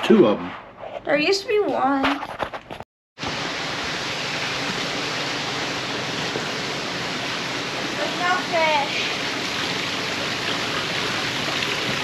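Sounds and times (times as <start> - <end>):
falling water rushing: 3.2 - 12.0.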